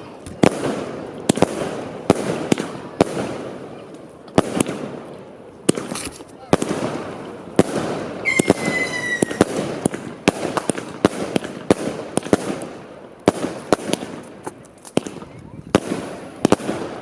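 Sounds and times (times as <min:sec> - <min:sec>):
fireworks banging: 0:00.0 - 0:17.0
fireworks crackling: 0:00.0 - 0:17.0
whistling firework shrieking: 0:08.2 - 0:09.5.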